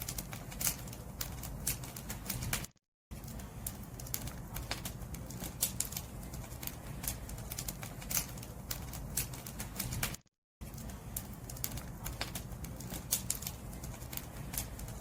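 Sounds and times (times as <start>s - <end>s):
firewood crackling and popping: 0.0s - 15.0s
low rumble of flames: 0.0s - 15.0s.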